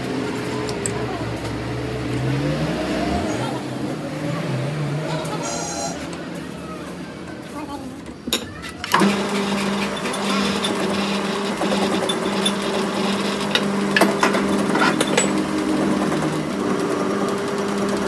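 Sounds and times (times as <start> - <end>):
small machine motor running: 8.9 - 18.0.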